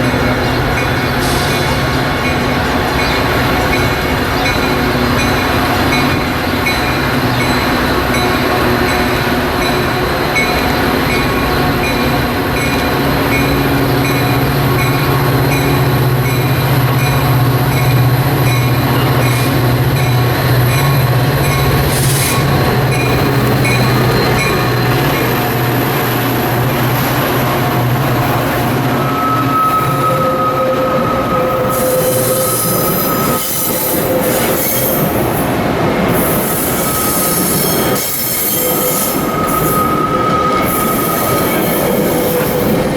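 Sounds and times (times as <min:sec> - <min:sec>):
locomotive engine humming: 0:00.0 - 0:42.9
train wheels squealing: 0:28.4 - 0:42.9.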